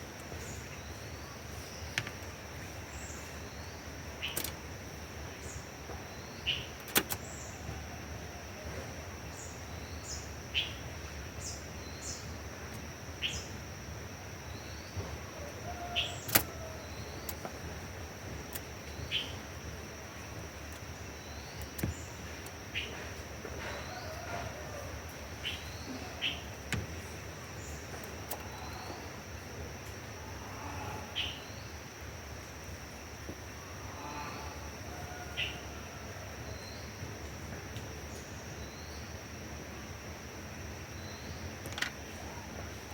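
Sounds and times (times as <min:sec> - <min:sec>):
birds chirping: 0:00.0 - 0:07.9, 0:08.6 - 0:32.5
sharp clicks: 0:04.2 - 0:04.6, 0:06.8 - 0:07.3, 0:16.2 - 0:16.5, 0:41.6 - 0:42.0.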